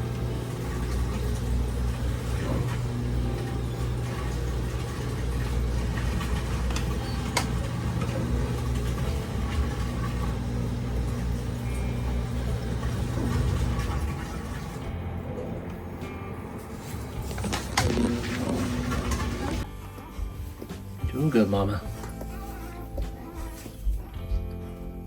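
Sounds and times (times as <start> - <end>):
low motor hum: 0.0 - 20.4.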